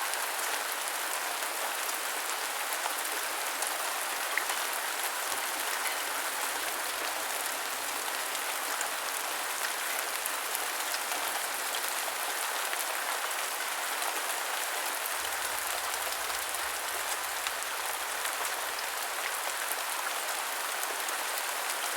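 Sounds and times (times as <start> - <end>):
heavy rain: 0.0 - 21.9.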